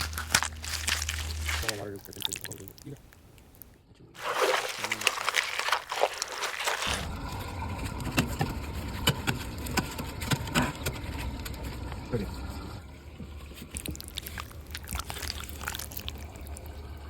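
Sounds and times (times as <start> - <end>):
glue sloshing and squishing: 0.0 - 7.4, 13.5 - 16.8.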